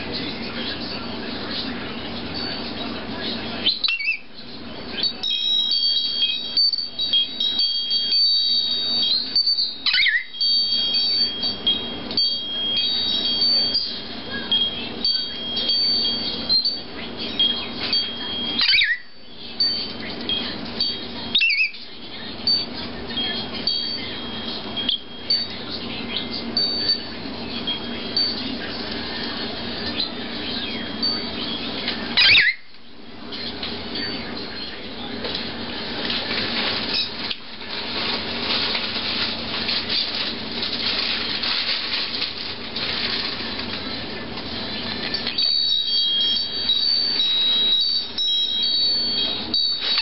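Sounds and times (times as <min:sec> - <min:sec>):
constant background hum: 0:00.0 - 0:50.0
parrot calling: 0:03.6 - 0:04.3, 0:08.4 - 0:10.4, 0:18.5 - 0:19.2, 0:21.2 - 0:21.8, 0:29.8 - 0:32.7.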